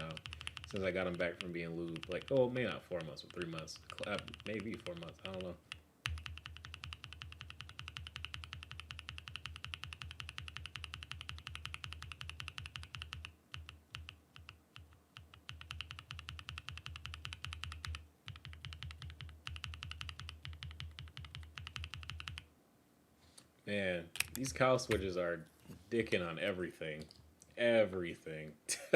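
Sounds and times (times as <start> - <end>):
typing on mechanical keyboard: 0.0 - 22.4.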